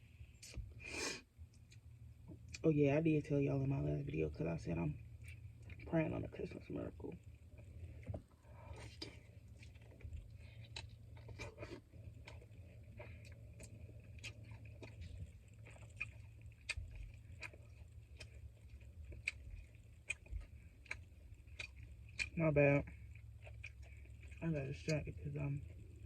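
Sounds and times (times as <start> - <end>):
steady low hum: 0.0 - 26.0
chewing and lip-smacking: 5.1 - 5.9, 7.2 - 26.0.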